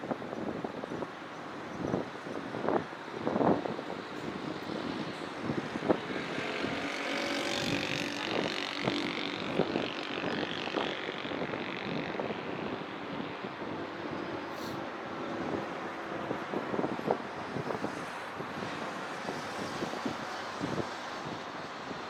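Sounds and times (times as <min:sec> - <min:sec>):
city traffic noise: 0:00.0 - 0:22.0
engine passing: 0:04.3 - 0:16.2.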